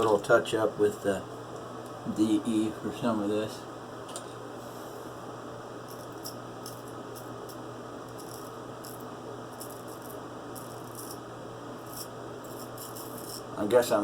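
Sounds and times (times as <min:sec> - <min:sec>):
razor scraping stubble: 0:05.9 - 0:11.2, 0:11.8 - 0:13.5.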